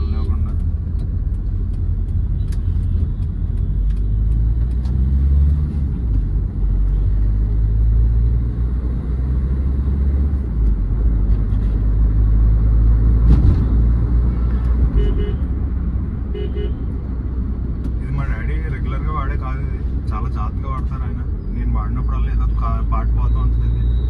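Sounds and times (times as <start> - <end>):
car engine rumble: 0.0 - 24.0
road noise: 0.0 - 24.0.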